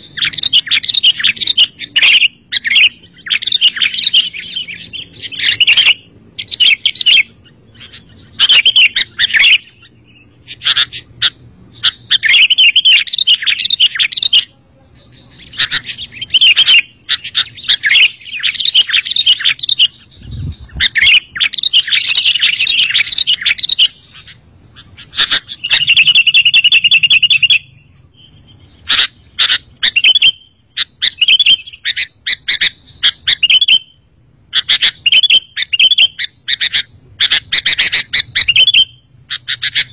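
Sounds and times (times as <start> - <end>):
bird chattering warbles: 0.0 - 39.9.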